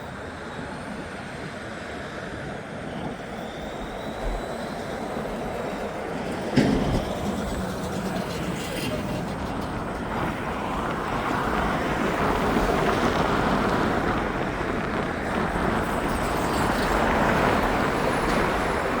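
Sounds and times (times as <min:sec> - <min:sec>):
airliner jet engines rushing: 0:00.0 - 0:19.0
wind on microphone: 0:02.3 - 0:19.0.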